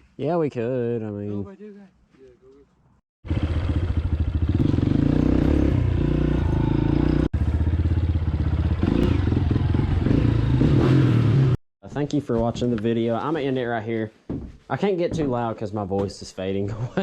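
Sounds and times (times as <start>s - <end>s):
dirt bike engine running: 3.2s - 11.6s.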